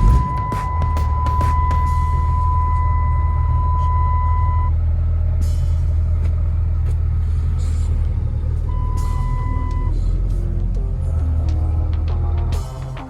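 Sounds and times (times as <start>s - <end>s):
high electronic beep: 0.0s - 4.8s, 8.7s - 10.0s
vehicle engine idling: 0.0s - 13.0s.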